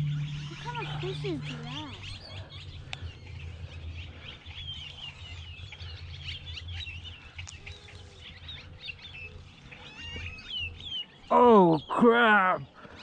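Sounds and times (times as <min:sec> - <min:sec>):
low rumble: 0:00.0 - 0:07.8
small birds chirping: 0:00.0 - 0:13.0.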